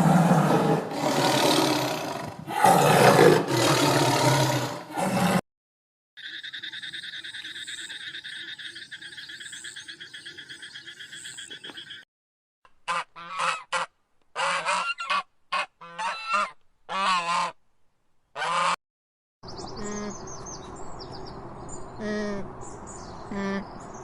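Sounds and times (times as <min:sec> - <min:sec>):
farm waterfowl calling: 0:12.8 - 0:17.6, 0:18.4 - 0:18.8.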